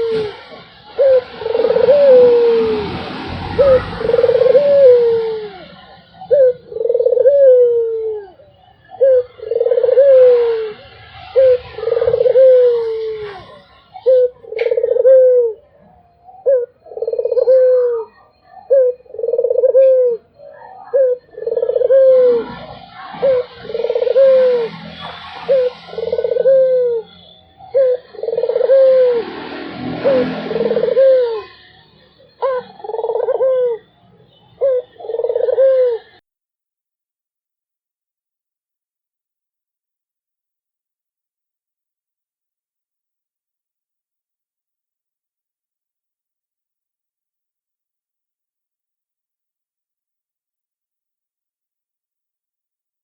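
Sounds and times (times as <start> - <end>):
dove cooing: 0.0 - 36.2
small birds chirping: 0.0 - 36.2.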